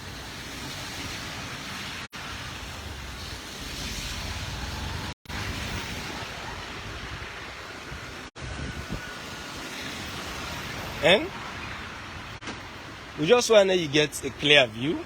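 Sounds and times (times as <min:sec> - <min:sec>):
low street rumble: 0:00.0 - 0:15.0
wind on microphone: 0:03.0 - 0:11.0.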